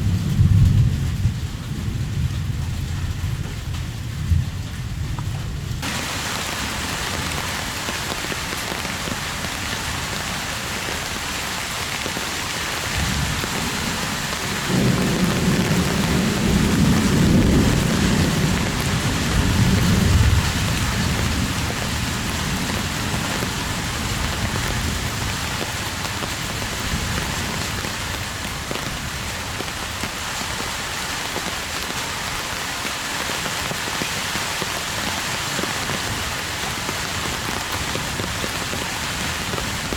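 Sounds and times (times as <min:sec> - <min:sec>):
thunder rumble: 0:00.0 - 0:30.0
heavy rain falling: 0:00.0 - 0:39.9.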